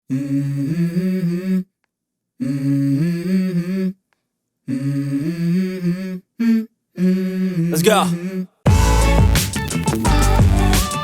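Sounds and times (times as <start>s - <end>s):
hummed vocal melody: 0.1s - 1.7s, 2.4s - 4.0s, 4.7s - 9.3s.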